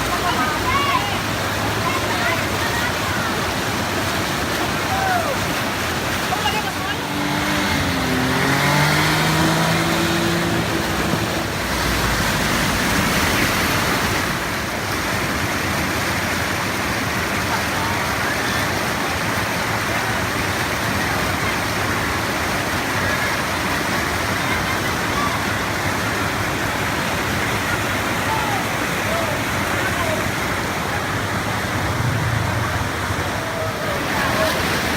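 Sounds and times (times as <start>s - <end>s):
floodwater rushing across road: 0.0s - 34.9s
low engine hum: 5.0s - 14.7s, 29.9s - 34.9s.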